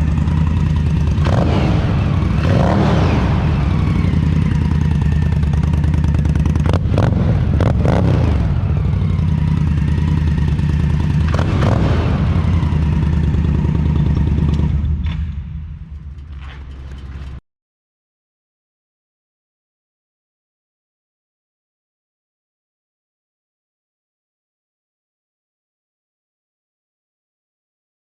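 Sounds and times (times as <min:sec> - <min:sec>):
motorcycle engine idling: 0:00.0 - 0:17.4.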